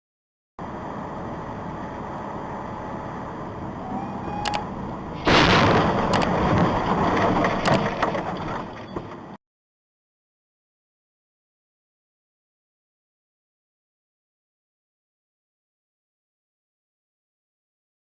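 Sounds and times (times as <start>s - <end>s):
road noise: 0.6s - 9.4s
vehicle crash with crunching: 5.2s - 9.4s.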